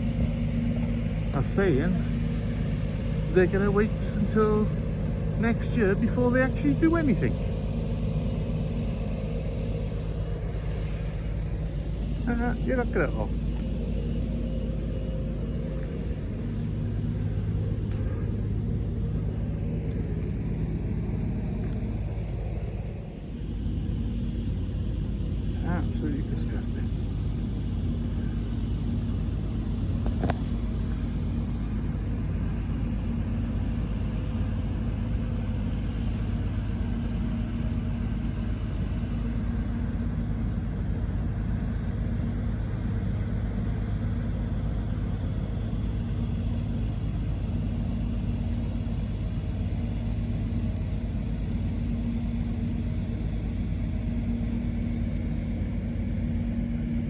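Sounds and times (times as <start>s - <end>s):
engine-driven pumps humming: 0.0s - 57.0s
low rumble: 0.0s - 57.0s.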